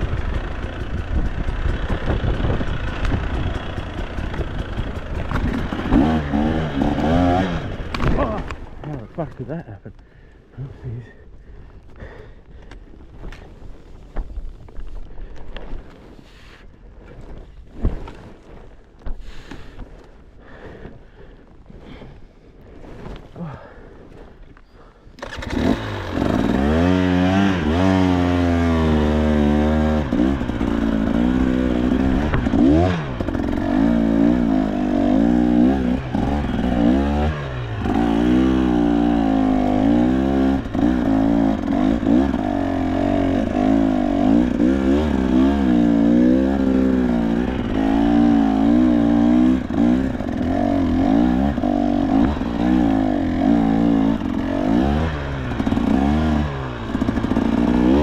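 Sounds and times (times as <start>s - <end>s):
dirt bike engine revving: 0.0s - 9.3s, 25.2s - 58.0s.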